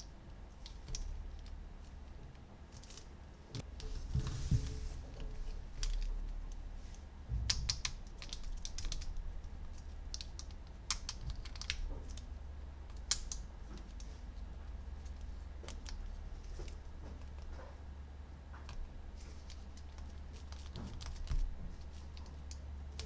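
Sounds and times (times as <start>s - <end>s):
plastic toy parts clicking: 10.1s - 12.2s, 13.0s - 14.0s.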